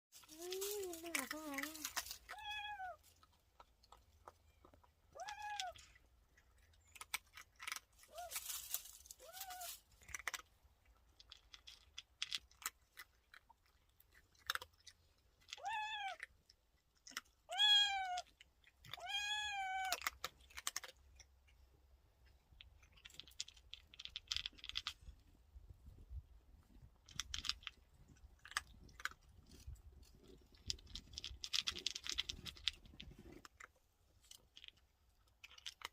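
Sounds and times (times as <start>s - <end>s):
faint rustling and clicking: 0.2s - 2.4s
cat meowing: 2.3s - 3.0s, 5.2s - 5.8s, 15.6s - 16.2s, 17.5s - 18.2s, 18.9s - 20.0s.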